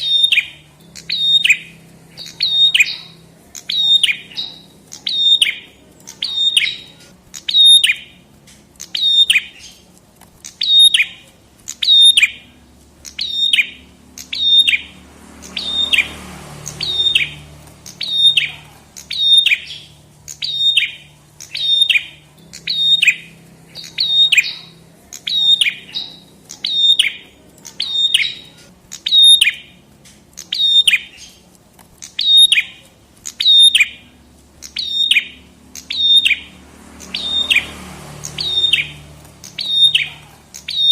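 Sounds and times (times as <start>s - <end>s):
songbird sharp downward chirp: 0.0s - 8.2s, 8.8s - 29.8s, 30.4s - 31.4s, 32.0s - 40.9s.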